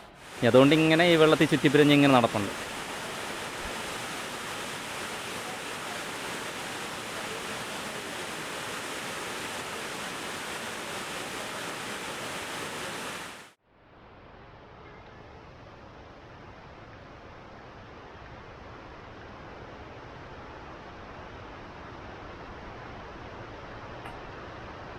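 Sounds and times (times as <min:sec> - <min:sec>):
waterfall rushing: 0:00.0 - 0:13.6
dull rush of water: 0:00.0 - 0:24.9.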